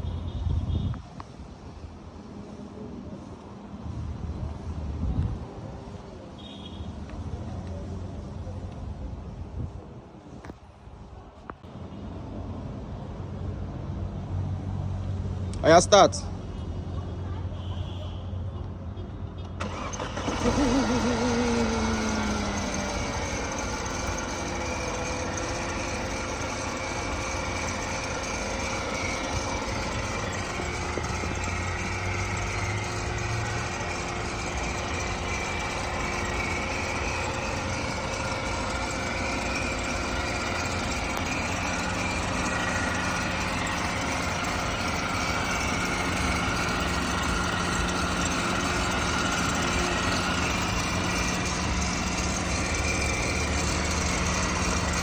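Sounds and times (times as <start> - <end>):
car engine idling: 19.6 - 55.0.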